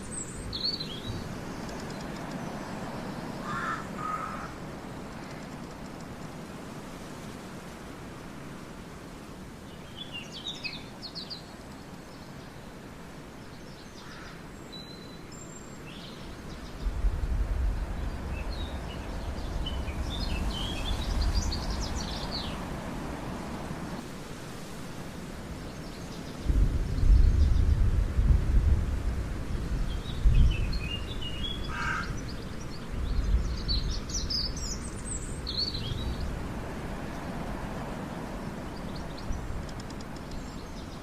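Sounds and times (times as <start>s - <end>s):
birds chirping: 0.0s - 6.2s, 13.4s - 24.0s, 29.7s - 41.0s
steady outdoor hiss: 0.0s - 41.0s.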